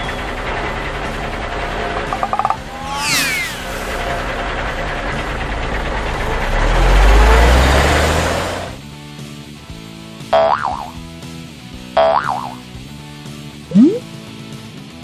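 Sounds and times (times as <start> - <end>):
truck engine rumble: 0.0 - 8.8
falling whistle sweep: 2.8 - 4.0, 13.7 - 14.0.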